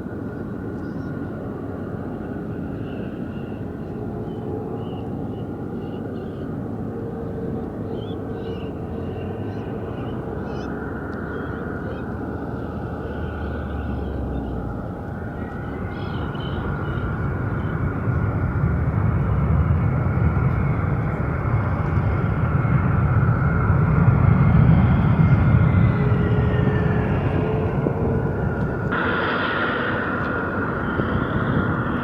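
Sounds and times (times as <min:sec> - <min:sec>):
high engine whine: 0:06.6 - 0:32.0
jet airliner passing: 0:07.0 - 0:32.0.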